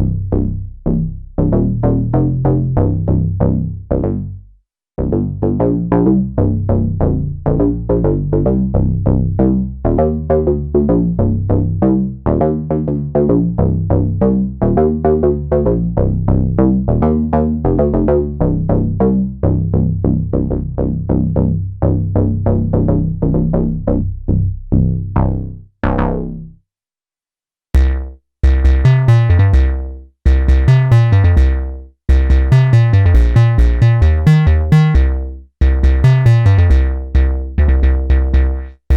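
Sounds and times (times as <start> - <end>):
synthesizer bass notes: 0.0 - 4.4, 5.0 - 26.6, 27.8 - 38.9
bright synthesizer notes: 27.8 - 38.8.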